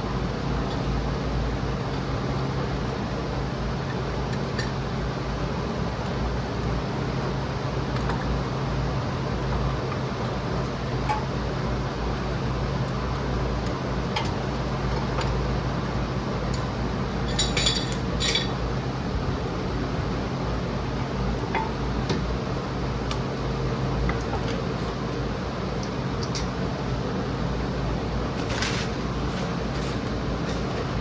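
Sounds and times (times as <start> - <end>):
steady low hum: 0.0 - 31.0
metal pieces clinking: 17.3 - 18.6.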